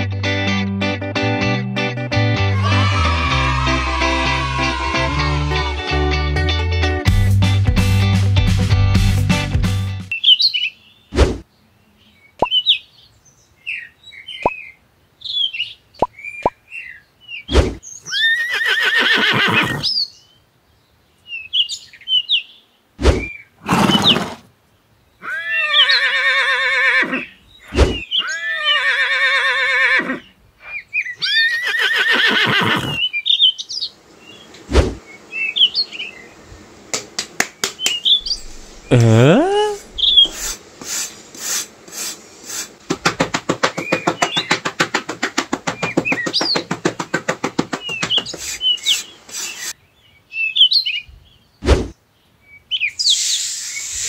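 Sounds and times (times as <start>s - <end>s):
bird chirps: 12.1s - 13.1s, 37.7s - 40.6s
horse whinnying: 18.1s - 19.9s, 23.6s - 24.5s, 25.2s - 27.3s, 27.9s - 30.3s, 31.2s - 33.0s, 38.2s - 40.4s
metal trowel scraping sand: 40.0s - 42.8s, 48.3s - 49.8s.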